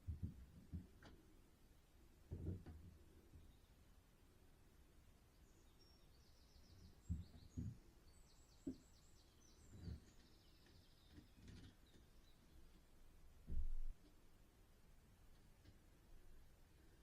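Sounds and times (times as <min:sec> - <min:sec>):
small birds chirping: 0:03.0 - 0:04.1, 0:05.0 - 0:13.1.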